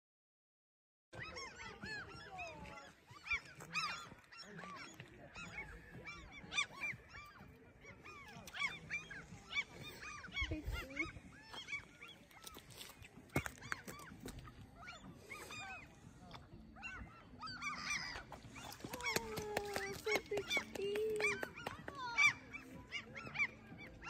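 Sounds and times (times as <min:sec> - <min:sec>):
water birds calling: 0:01.2 - 0:24.0.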